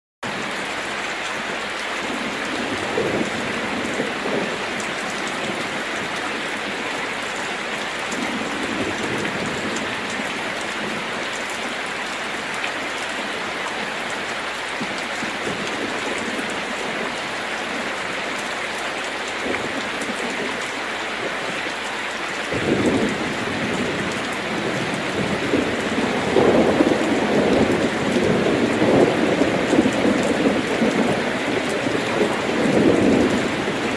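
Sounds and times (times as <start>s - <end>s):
heavy rain on a metal roof: 0.2s - 33.9s
rolling thunder rumble: 2.1s - 7.0s, 22.5s - 33.9s.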